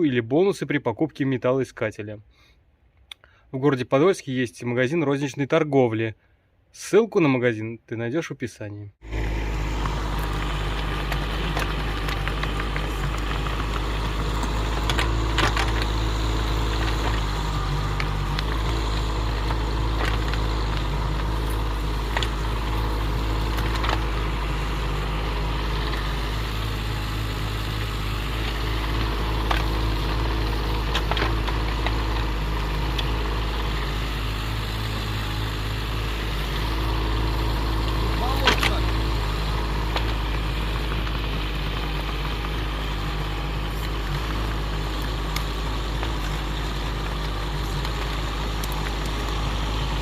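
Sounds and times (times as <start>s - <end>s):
excavator engine running: 9.0s - 50.0s.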